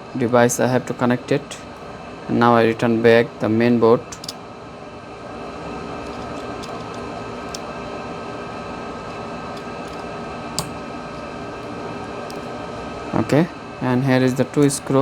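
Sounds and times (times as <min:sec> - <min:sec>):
room hum: 0:00.0 - 0:15.0
light clicks of phone parts: 0:04.1 - 0:04.4, 0:05.8 - 0:07.8, 0:09.0 - 0:12.6.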